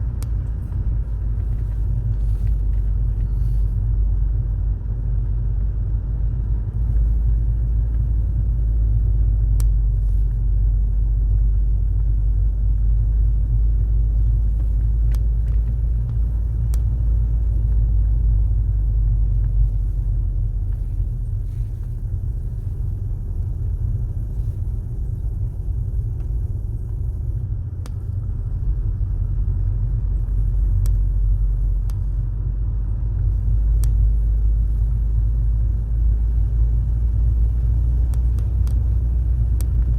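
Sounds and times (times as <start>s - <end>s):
car road and engine rumble: 0.0s - 39.9s
faint clicks: 30.0s - 32.2s, 33.2s - 35.1s, 36.8s - 39.9s.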